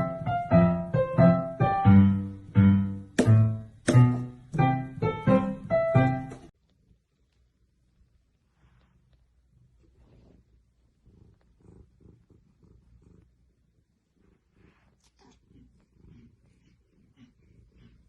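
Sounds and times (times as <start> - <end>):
soft rustles: 6.6 - 16.0
cat purring: 6.6 - 18.0
faint low rumble: 6.6 - 18.0.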